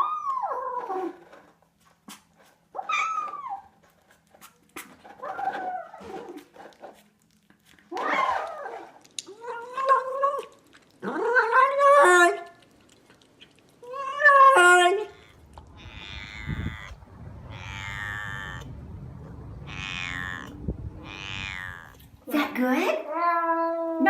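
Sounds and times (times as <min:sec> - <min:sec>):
cat yowling: 0:13.8 - 0:22.2
rough cat vocal sounds: 0:13.8 - 0:22.2.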